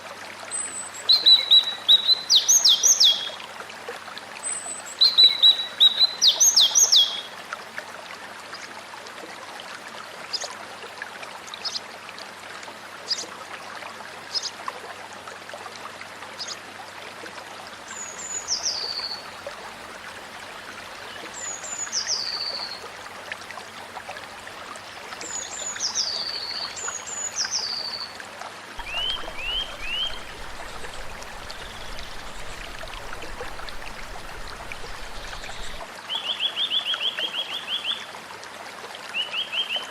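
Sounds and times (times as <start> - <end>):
flowing water: 0.0 - 39.9
bird singing whistled phrases: 28.8 - 35.8.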